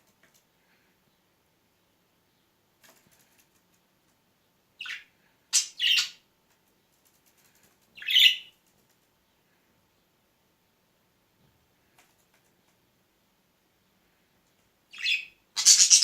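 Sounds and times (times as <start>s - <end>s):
budgerigar harsh chirps: 15.0s - 16.0s.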